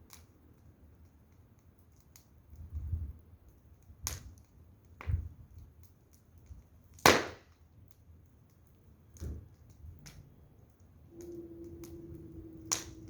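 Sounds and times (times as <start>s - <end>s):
wood fire crackling: 0.0s - 13.0s
faint steady hum: 10.7s - 13.0s.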